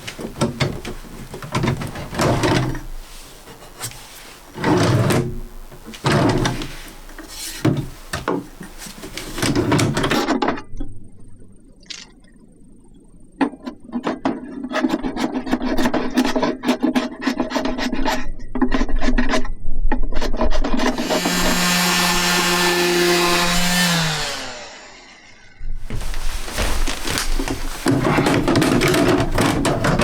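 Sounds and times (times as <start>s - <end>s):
scraping strokes on wood: 0.0s - 10.2s, 20.8s - 24.6s, 25.8s - 30.0s
small power tool running: 21.0s - 25.6s.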